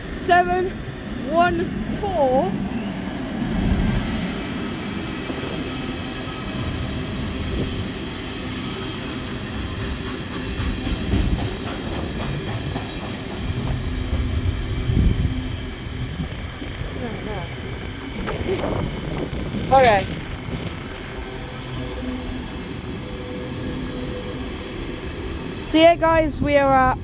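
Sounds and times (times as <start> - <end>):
diesel locomotive engine running: 0.0 - 27.0
freight wagons clattering on rails: 8.8 - 15.1, 16.1 - 22.8.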